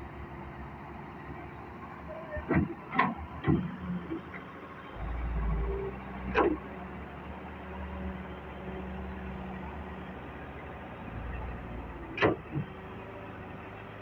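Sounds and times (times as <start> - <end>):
diesel engine humming: 4.6 - 14.0.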